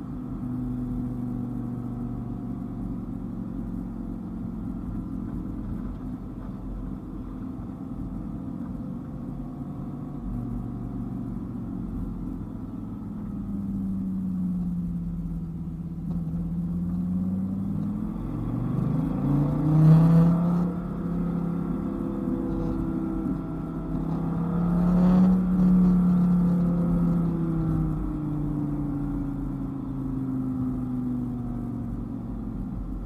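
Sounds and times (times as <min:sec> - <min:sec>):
car engine accelerating: 0:00.0 - 0:33.0
road rumble: 0:00.0 - 0:33.0.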